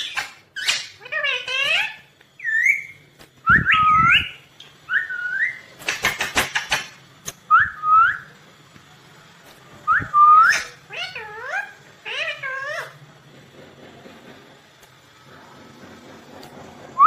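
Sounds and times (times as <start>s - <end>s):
parrot whistled calls: 0.0s - 6.9s, 7.5s - 8.3s, 9.9s - 13.0s.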